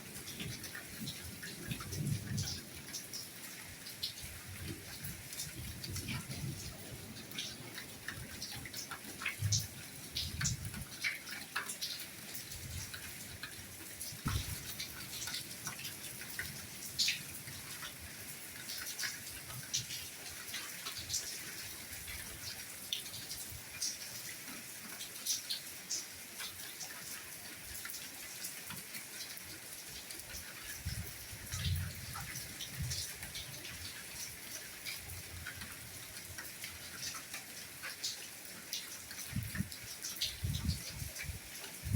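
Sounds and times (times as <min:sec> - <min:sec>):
raindrops ticking and pattering: 0:00.0 - 0:41.9
rain hissing: 0:14.1 - 0:17.8.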